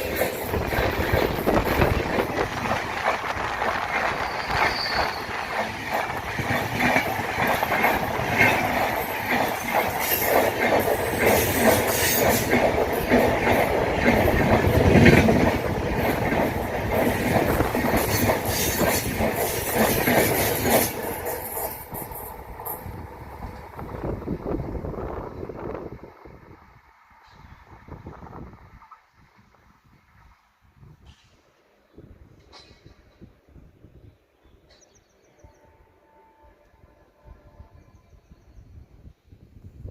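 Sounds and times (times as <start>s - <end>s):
train wheels clattering on rails: 0.0s - 23.8s, 32.3s - 33.5s.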